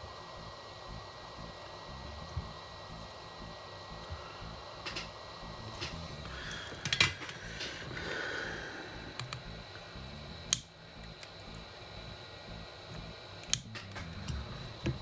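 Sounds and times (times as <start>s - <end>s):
low steady hiss: 0.0s - 15.0s
hand tools clicking and tapping: 5.7s - 7.9s, 9.2s - 9.4s.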